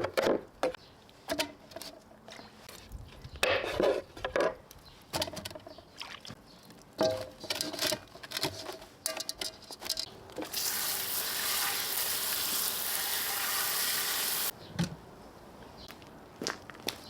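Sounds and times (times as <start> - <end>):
food sizzling in a pan: 10.5 - 14.5.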